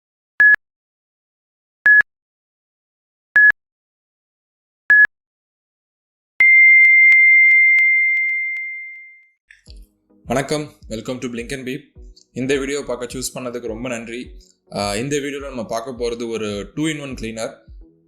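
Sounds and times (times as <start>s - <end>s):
longer higher beep: 6.4s - 9.3s
short electronic beeps: 6.4s - 9.3s.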